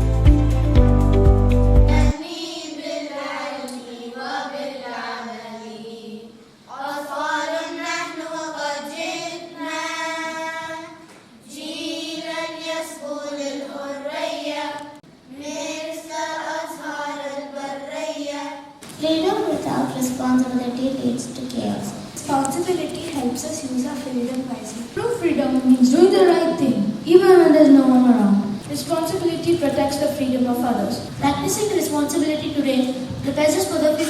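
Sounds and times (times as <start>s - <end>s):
children singing together: 1.9s - 20.6s.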